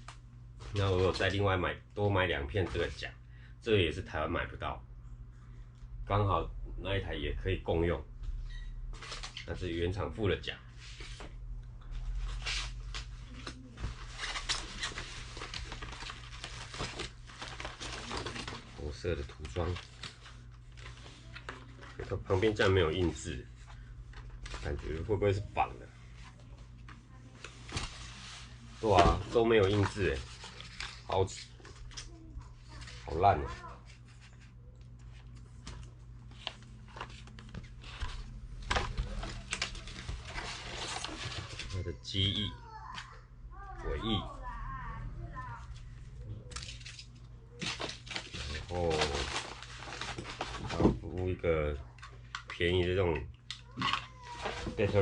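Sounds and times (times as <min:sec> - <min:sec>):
faint low hum: 0:00.0 - 0:55.0
plastic packaging rustling: 0:12.0 - 0:25.4, 0:26.0 - 0:42.4, 0:45.6 - 0:52.9, 0:53.5 - 0:55.0.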